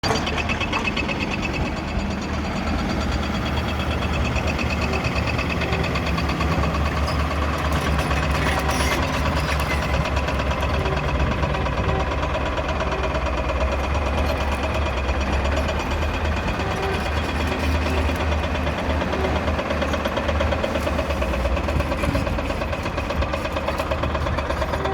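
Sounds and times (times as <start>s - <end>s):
excavator diesel engine running: 0.0s - 24.9s.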